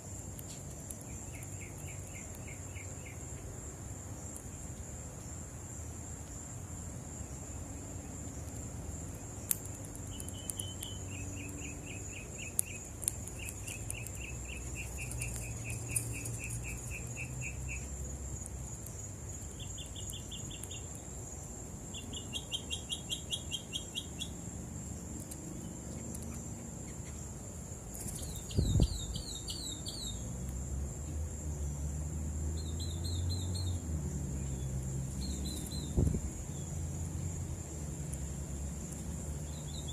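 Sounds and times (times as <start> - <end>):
insects droning: 0.0 - 39.9
songbirds trilling: 1.0 - 3.5, 9.2 - 30.4, 32.4 - 39.9
sharp clicks: 9.4 - 11.6, 12.4 - 17.0.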